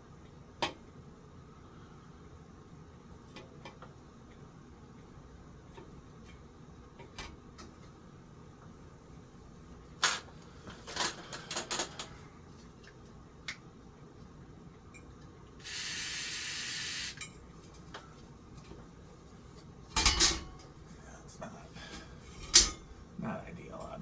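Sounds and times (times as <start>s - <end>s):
aerosol can spraying: 15.6s - 17.2s.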